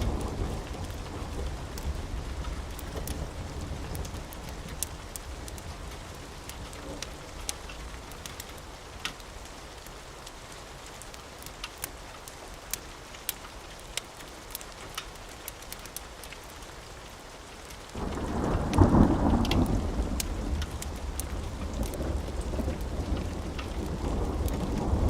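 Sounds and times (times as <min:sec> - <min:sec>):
thunder rumbling: 0:00.0 - 0:08.0, 0:18.0 - 0:25.0
sharp ticks and crackles: 0:00.0 - 0:25.0
steady rain: 0:00.0 - 0:25.0.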